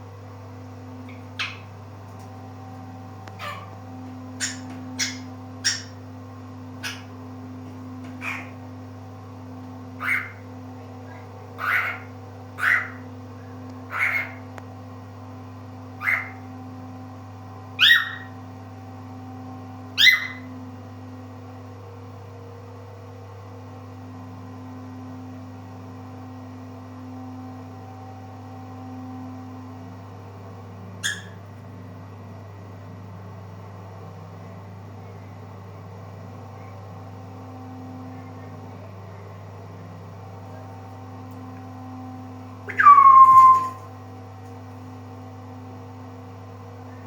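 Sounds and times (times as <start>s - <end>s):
cockatiel calls: 1.1s - 1.7s, 3.4s - 3.7s, 4.4s - 6.0s, 6.8s - 7.1s, 8.2s - 8.6s, 10.0s - 10.4s, 11.6s - 13.0s, 13.9s - 14.4s, 16.0s - 16.4s, 17.8s - 18.3s, 20.0s - 20.4s, 31.0s - 31.4s, 42.7s - 43.9s.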